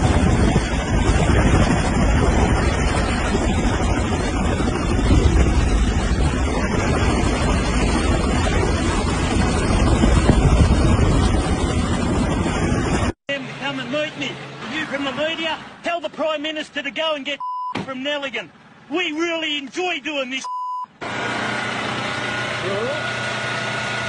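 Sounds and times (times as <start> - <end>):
loud low rushing noise: 0.0 - 14.6.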